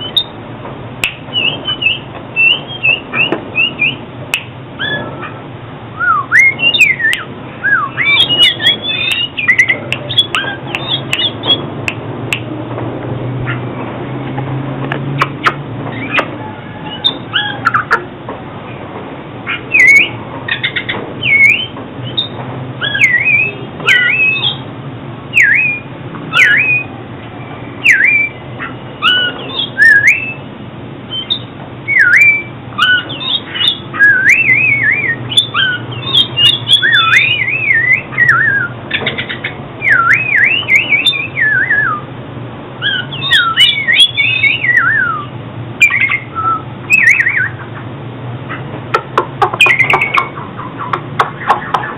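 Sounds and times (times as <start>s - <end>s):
bird singing whistled phrases: 0.0s - 0.3s, 1.3s - 5.1s, 6.0s - 11.7s, 19.5s - 24.6s, 25.3s - 26.9s, 27.8s - 30.5s, 31.1s - 42.1s, 42.8s - 47.6s, 49.6s - 50.3s.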